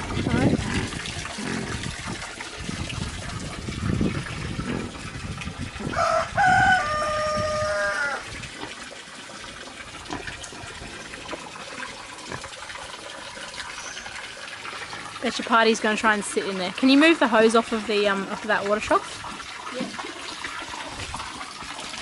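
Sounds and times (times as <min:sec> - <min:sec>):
water splashing into a trough: 0:00.0 - 0:22.0
rooster crowing: 0:05.9 - 0:08.2.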